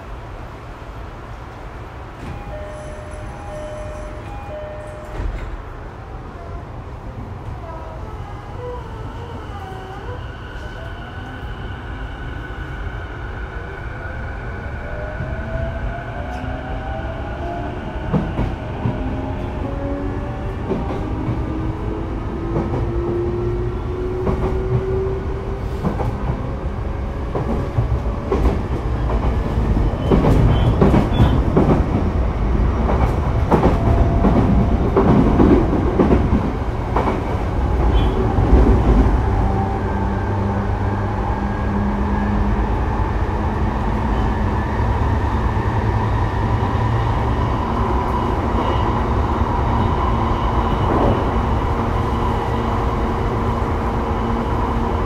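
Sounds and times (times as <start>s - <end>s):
train running rumble: 16.2s - 55.0s.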